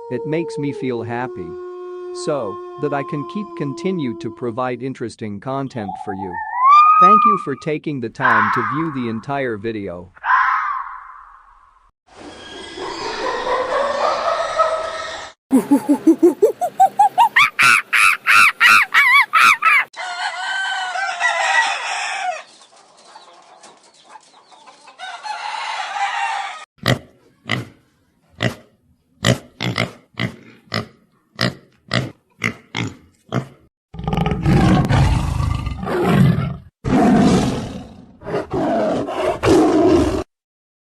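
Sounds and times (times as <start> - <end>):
chickens crowing and clucking: 0.0 - 4.4, 12.8 - 26.7
deep drawn-out animal calls: 0.0 - 4.6, 5.8 - 7.6.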